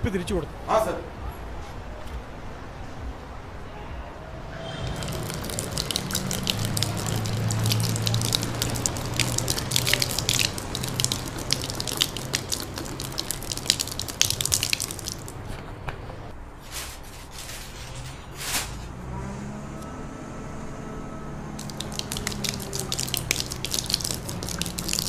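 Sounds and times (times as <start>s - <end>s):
water splashing onto ground: 4.8s - 15.4s, 21.6s - 25.0s.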